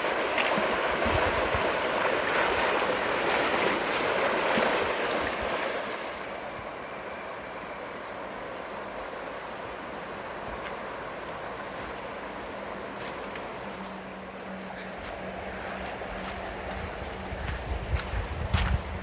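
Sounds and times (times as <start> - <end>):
river rushing over rapids: 0.0 - 15.1.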